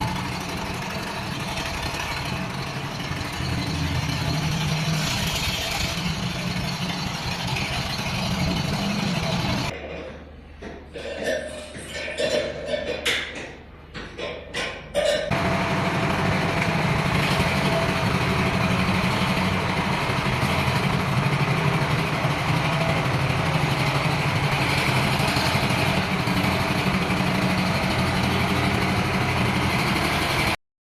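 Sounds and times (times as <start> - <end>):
tractor diesel engine running: 0.0 - 9.8, 15.3 - 30.6.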